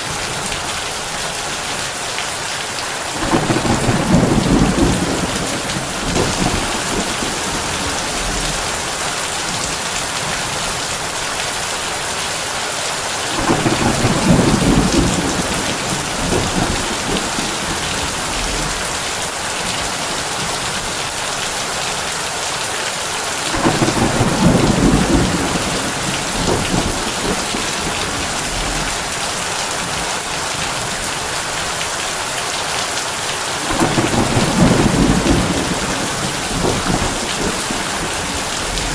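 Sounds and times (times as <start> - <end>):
heavy rain on a tin roof: 0.0 - 38.9
thunder rolling: 3.2 - 9.1, 13.3 - 19.0, 23.5 - 29.2, 33.6 - 38.9.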